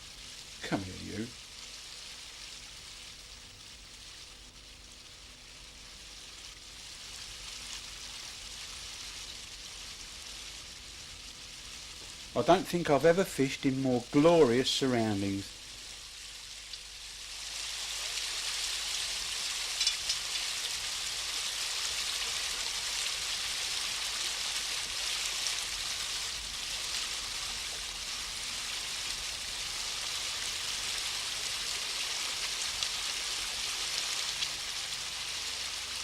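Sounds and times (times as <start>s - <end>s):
faint ticks: 16.6s - 16.9s.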